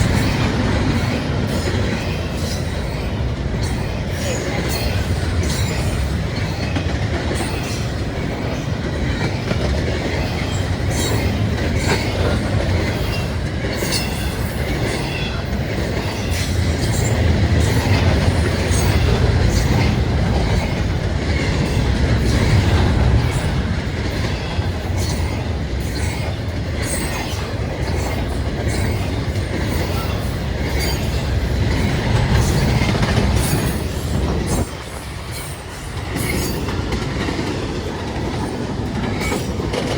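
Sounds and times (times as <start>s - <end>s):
freight train wheels rumbling: 0.0s - 39.9s
train wheels clicking and clanking: 0.0s - 39.9s.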